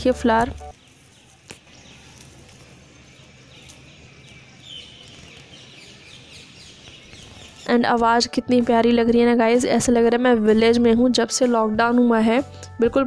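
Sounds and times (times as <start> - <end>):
faint birds chirping: 0.0 - 10.0.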